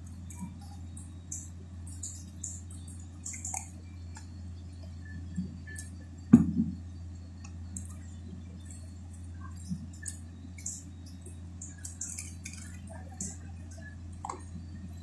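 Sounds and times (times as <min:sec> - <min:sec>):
low steady hum: 0:00.0 - 0:15.0
wet chewing and mouth clicks: 0:01.3 - 0:06.0, 0:09.2 - 0:14.6.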